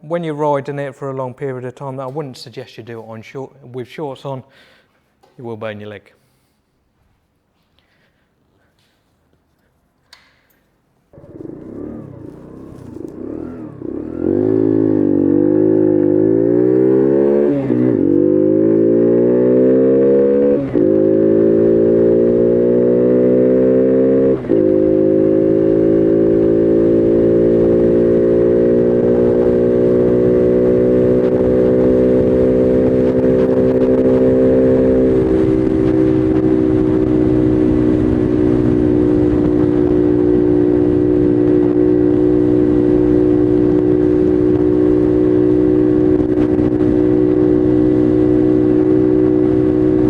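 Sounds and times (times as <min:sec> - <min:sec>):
small motorcycle engine accelerating: 0:11.1 - 0:50.0.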